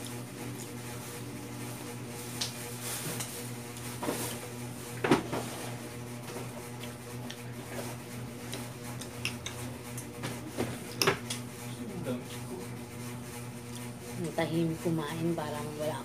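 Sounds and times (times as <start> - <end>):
steady low hum: 0.0 - 16.0
person chewing food: 6.6 - 7.6.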